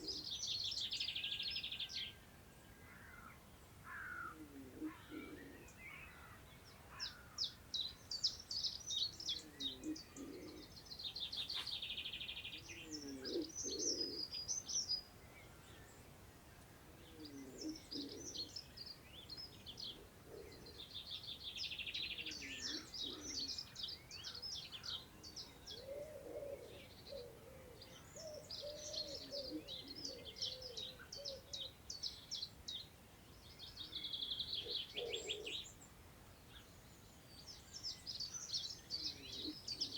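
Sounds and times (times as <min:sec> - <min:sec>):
birds chirping and trilling: 0:00.0 - 0:16.2, 0:17.0 - 0:39.9
low slow bird call: 0:17.1 - 0:39.9.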